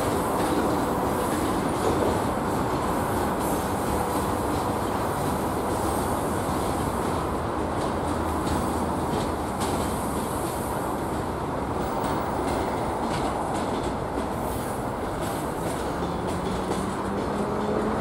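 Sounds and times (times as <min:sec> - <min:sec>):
train wheels rumbling on rail: 0:00.0 - 0:18.0
wheels clicking over rail joints: 0:07.7 - 0:18.0.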